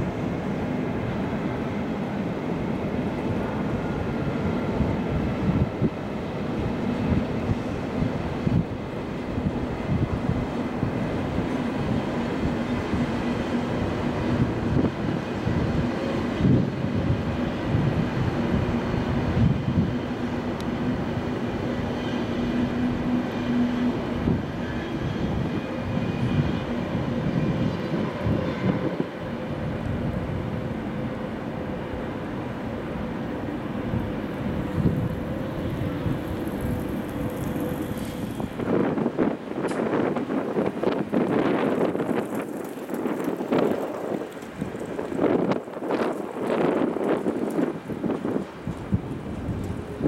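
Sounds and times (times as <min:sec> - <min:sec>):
train hum: 0:00.0 - 0:50.0
wheels rumbling on track: 0:00.0 - 0:50.0
clicks of wheels on rails: 0:33.9 - 0:50.0.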